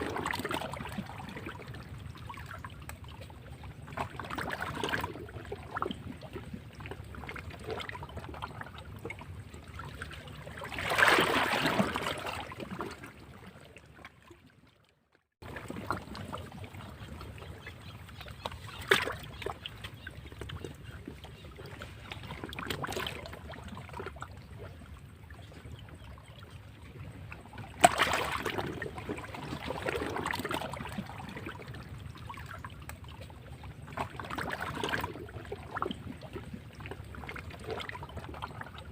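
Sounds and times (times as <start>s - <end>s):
waves breaking against rocks: 10.2s - 13.2s, 27.8s - 31.5s.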